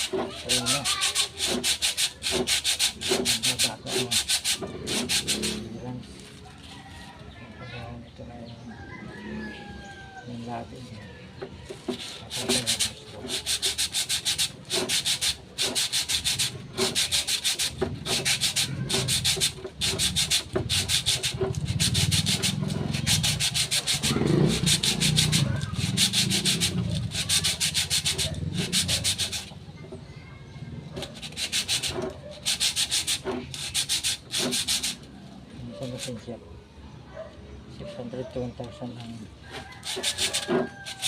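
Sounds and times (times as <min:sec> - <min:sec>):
abrasive rasping on metal: 0:00.0 - 0:05.8, 0:11.5 - 0:30.1, 0:30.8 - 0:36.3, 0:39.5 - 0:41.0.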